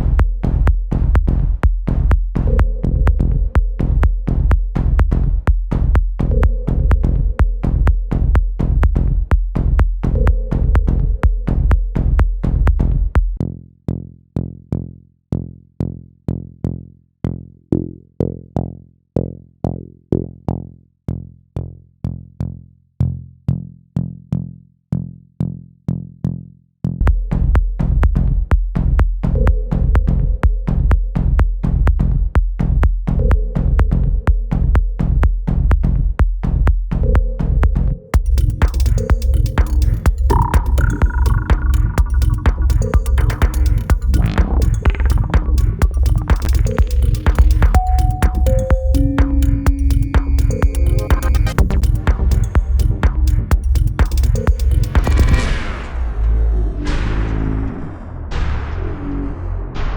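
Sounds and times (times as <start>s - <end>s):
drum machine beat: 0.0s - 13.4s, 27.0s - 55.4s
heavy bass: 0.0s - 23.6s, 27.0s - 59.9s
short repeated synth note: 47.7s - 52.6s.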